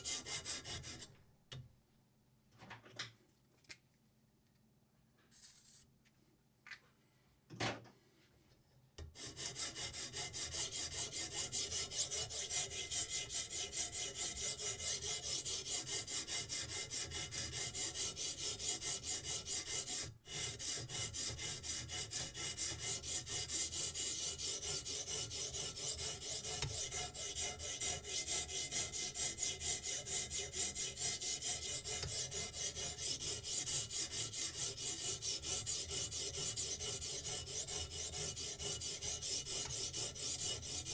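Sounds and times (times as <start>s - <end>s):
knife scraping on whetstone: 24.2s - 40.9s.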